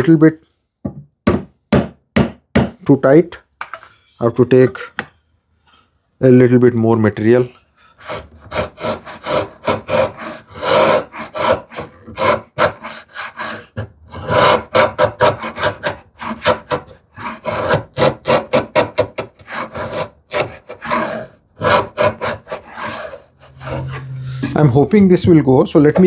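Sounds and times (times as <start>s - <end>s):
hand tool scraping wood: 6.9s - 25.3s.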